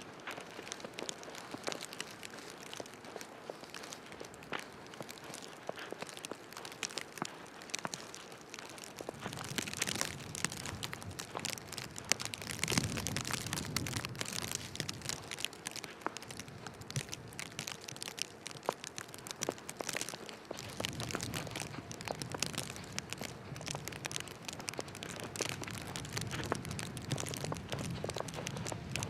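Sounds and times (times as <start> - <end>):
footsteps crunching in snow: 0.0 - 29.0
street noise hiss: 0.0 - 29.0.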